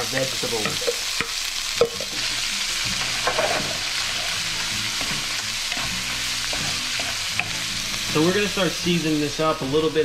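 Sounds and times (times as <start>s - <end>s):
food sizzling in a frying pan: 0.0s - 10.0s
wooden spoon scraping a pan: 3.0s - 7.7s.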